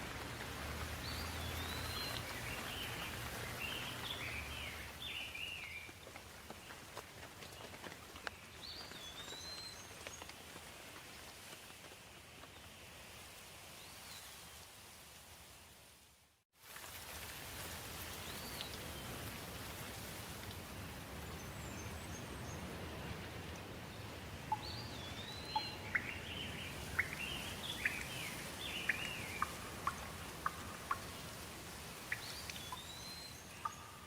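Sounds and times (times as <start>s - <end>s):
steady rain: 0.0s - 34.0s
bird chirping: 1.0s - 5.8s, 24.5s - 31.2s, 32.1s - 34.0s
drip ticks: 24.5s - 33.0s, 33.6s - 34.0s.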